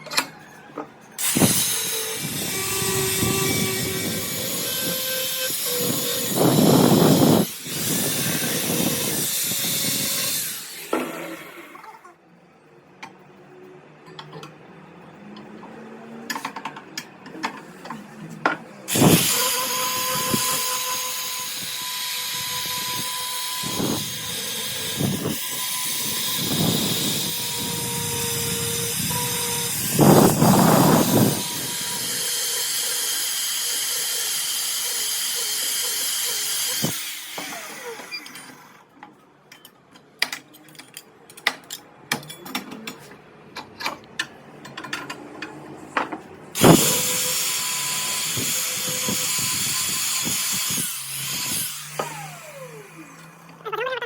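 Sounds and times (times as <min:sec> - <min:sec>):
electric power tool running: 0:01.2 - 0:11.6, 0:18.9 - 0:38.6, 0:46.6 - 0:53.6
metal tools clicking and knocking: 0:38.2 - 0:46.2.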